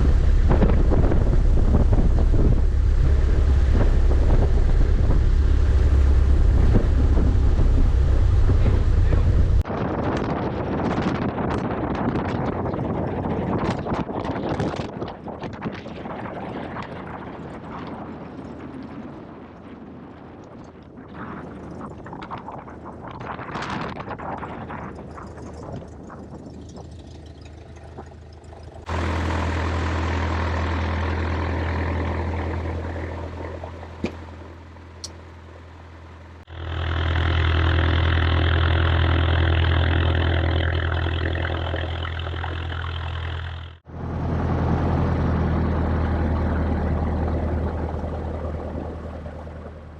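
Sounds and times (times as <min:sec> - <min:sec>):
aircraft piston engine drone: 0:00.0 - 0:09.8, 0:24.2 - 0:49.9
wind buffeting microphone: 0:00.0 - 0:28.9.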